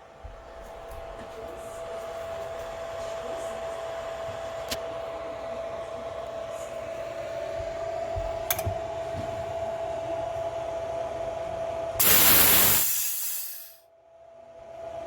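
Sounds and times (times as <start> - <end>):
air compressor humming and whining: 0.0 - 13.8
rush of venting air: 12.0 - 13.7.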